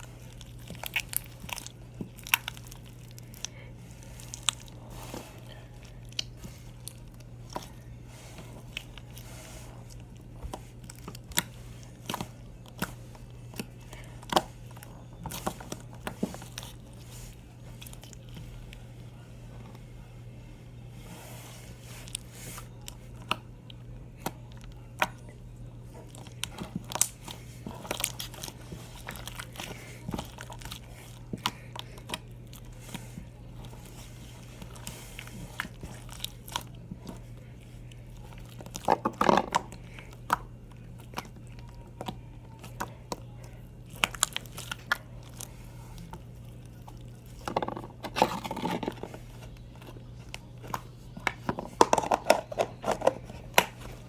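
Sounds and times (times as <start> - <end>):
slime crackling and popping: 0.0 - 4.8, 26.0 - 32.8, 43.8 - 45.5
steady low hum: 0.0 - 54.0.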